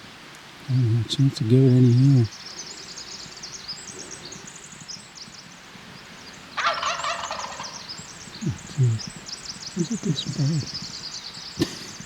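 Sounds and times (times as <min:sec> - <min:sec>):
songbird chirping: 0:00.0 - 0:12.0
turkey gobbling: 0:06.6 - 0:09.0.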